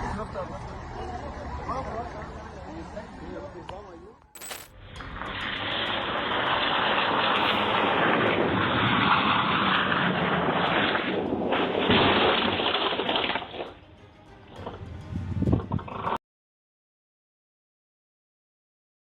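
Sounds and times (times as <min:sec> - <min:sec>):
rushing vehicle noise: 0:04.5 - 0:12.6.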